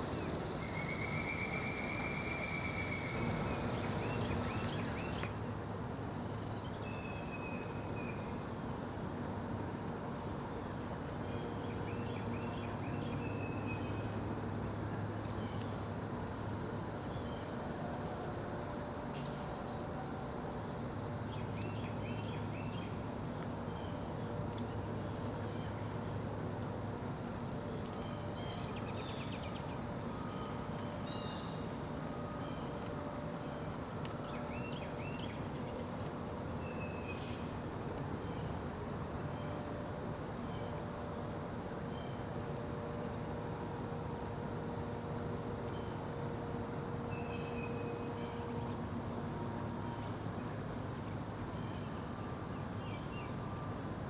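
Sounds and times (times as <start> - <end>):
blue jay calling: 0.0 - 5.3
low background hum: 0.0 - 54.0.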